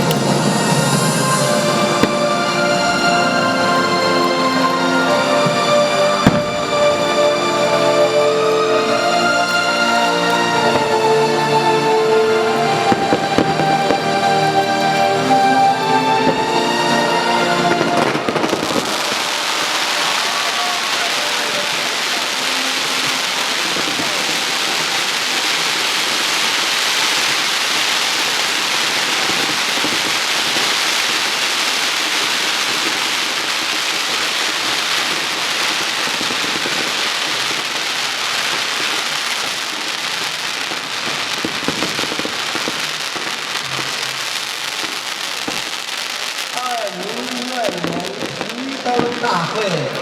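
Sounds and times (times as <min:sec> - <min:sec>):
fireworks crackling: 0:00.0 - 0:50.0.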